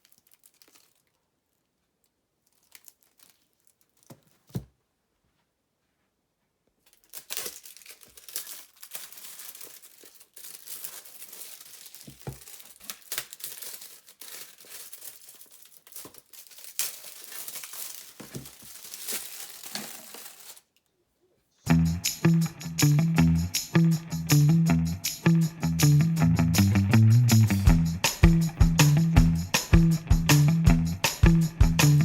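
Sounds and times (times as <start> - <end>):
crinkling and rustling: 0.0 - 21.0.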